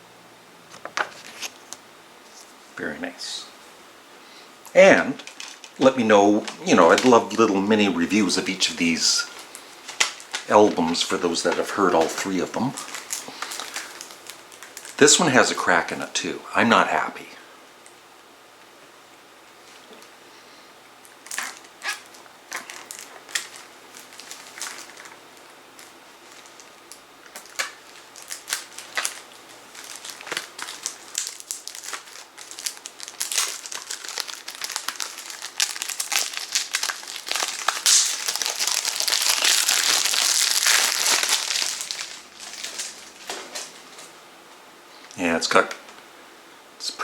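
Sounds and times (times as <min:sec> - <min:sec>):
plastic wrapping crinkling: 0:04.8 - 0:15.9, 0:21.0 - 0:44.2.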